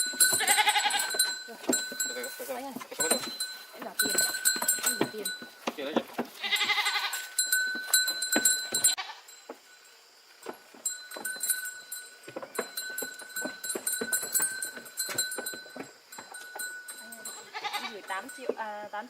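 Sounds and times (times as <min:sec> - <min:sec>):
knocks and clatters: 0:00.0 - 0:09.0, 0:10.4 - 0:16.8
goats moving about: 0:00.0 - 0:19.0
goat bleating: 0:00.2 - 0:01.3, 0:06.4 - 0:07.4, 0:08.8 - 0:09.3, 0:17.2 - 0:18.2.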